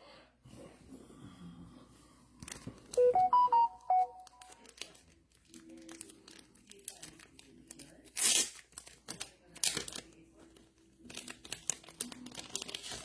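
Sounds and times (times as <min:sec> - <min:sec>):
wrapper crinkling and tearing: 0:04.3 - 0:13.0.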